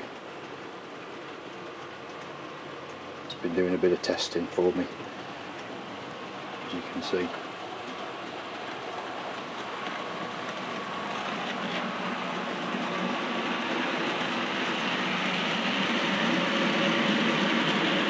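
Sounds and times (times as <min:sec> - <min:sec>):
model train rolling rumble: 0:00.0 - 0:18.0.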